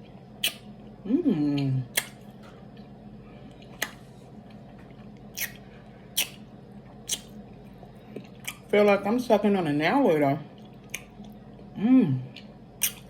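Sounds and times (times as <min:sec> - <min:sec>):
wet lip smacks while chewing: 0:00.4 - 0:00.7, 0:01.9 - 0:02.2, 0:06.2 - 0:06.4, 0:07.1 - 0:07.4, 0:12.4 - 0:13.0
person humming: 0:01.0 - 0:01.9.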